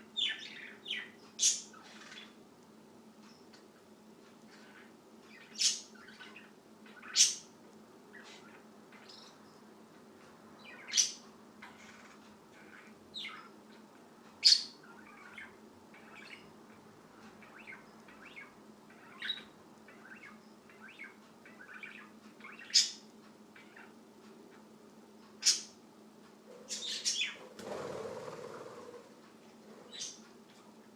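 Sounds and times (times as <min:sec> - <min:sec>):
bird chirping: 0:00.0 - 0:02.4, 0:04.5 - 0:07.5, 0:08.1 - 0:09.7, 0:10.6 - 0:13.8, 0:14.4 - 0:16.6, 0:17.2 - 0:24.7, 0:25.4 - 0:25.8, 0:26.5 - 0:27.7, 0:29.8 - 0:30.3.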